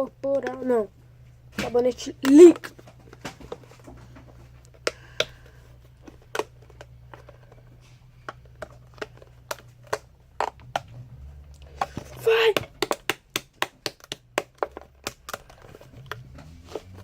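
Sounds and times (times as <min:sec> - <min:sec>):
steady low hum: 0:00.0 - 0:17.0
plastic bottle clicks and taps: 0:11.8 - 0:16.2.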